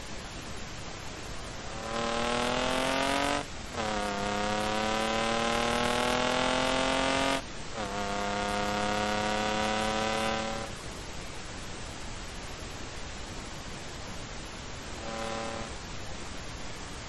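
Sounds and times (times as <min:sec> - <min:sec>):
wind and road rush: 0:00.0 - 0:17.0
car engine accelerating hard: 0:01.6 - 0:10.7, 0:15.0 - 0:15.8
gear upshifts: 0:01.6 - 0:10.7, 0:15.0 - 0:15.8.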